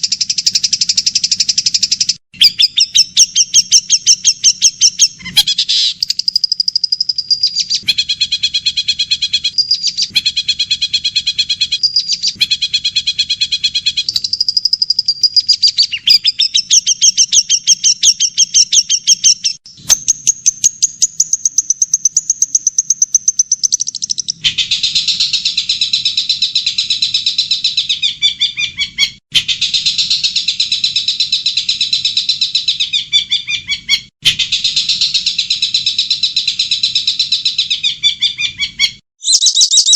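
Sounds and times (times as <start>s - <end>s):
songbirds singing chattering trills: 11.7s - 28.3s, 38.4s - 39.9s.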